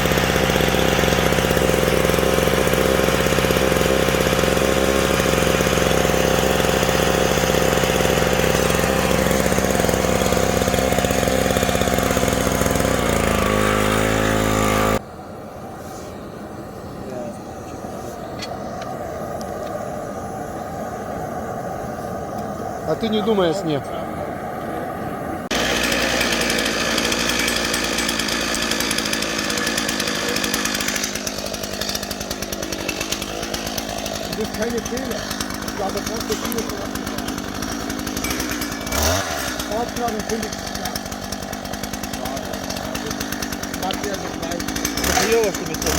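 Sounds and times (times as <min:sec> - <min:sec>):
engine running: 0:00.0 - 0:45.9
dense high hiss: 0:15.0 - 0:25.5.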